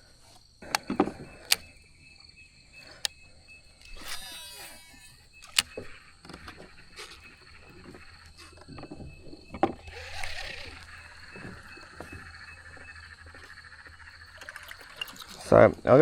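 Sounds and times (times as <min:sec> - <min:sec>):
sharp click: 0:03.8 - 0:06.6.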